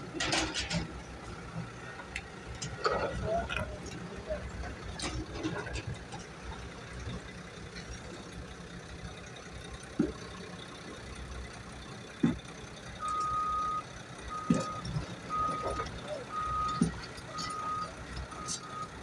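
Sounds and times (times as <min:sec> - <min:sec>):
low engine rumble: 0:00.0 - 0:19.0
reversing alarm beeping: 0:13.0 - 0:19.0.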